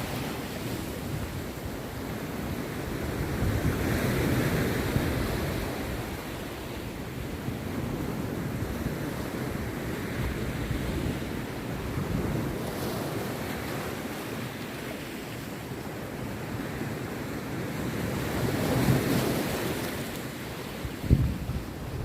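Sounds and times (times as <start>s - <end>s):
wind on microphone: 0.0s - 13.6s, 20.6s - 22.0s
sea surf breaking on beach: 0.0s - 22.0s.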